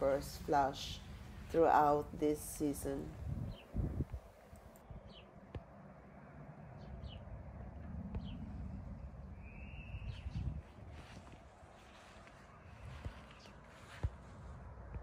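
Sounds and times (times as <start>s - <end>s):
low background rumble: 0.0s - 13.2s
birds chirping: 2.9s - 3.9s.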